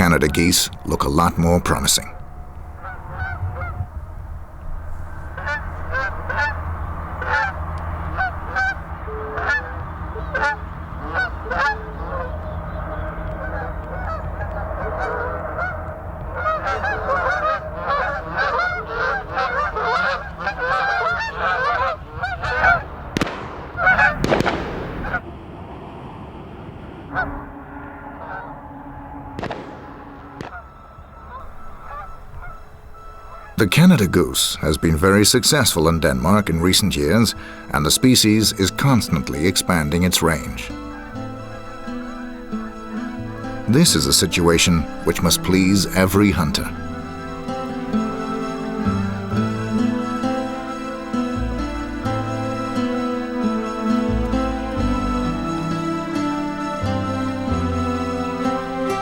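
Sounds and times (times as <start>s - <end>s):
geese honking: 0.0s - 25.3s, 26.6s - 59.0s
loud bangs: 21.6s - 36.6s.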